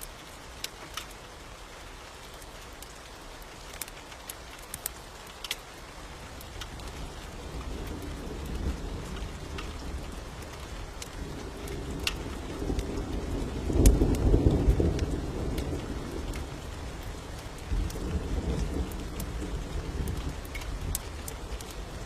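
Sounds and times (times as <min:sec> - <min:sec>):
steady rain: 0:00.0 - 0:22.0
wood fire crackling: 0:00.0 - 0:22.0
thunder rumbling: 0:06.0 - 0:22.0.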